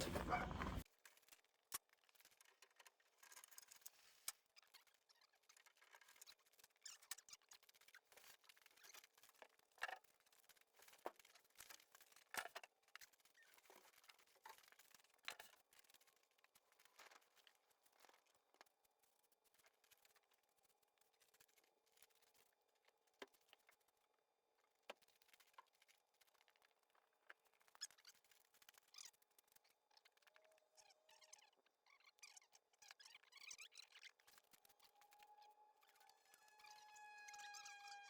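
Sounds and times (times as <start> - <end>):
short rustles: 0.0 - 0.8.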